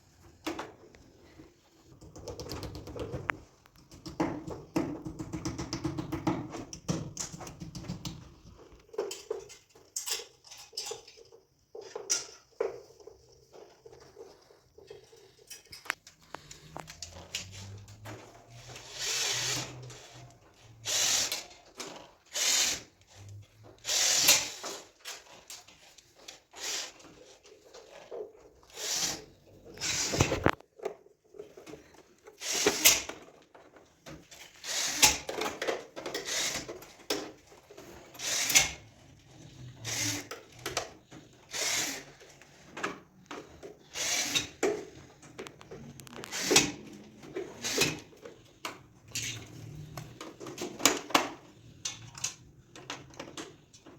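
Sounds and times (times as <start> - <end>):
power drill short bursts: 18.8 - 20.1, 20.8 - 21.4, 22.3 - 22.9, 23.8 - 24.6, 32.4 - 33.1, 34.6 - 35.3, 36.2 - 36.7, 38.2 - 38.8, 41.5 - 42.1, 43.9 - 44.6.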